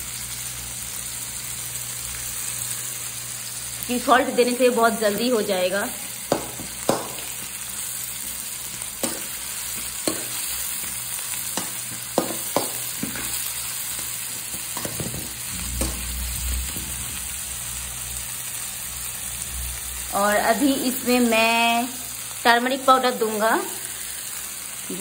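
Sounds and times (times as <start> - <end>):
onions frying in oil: 0.0 - 25.0
metal spoon scraping a pan: 9.0 - 17.1.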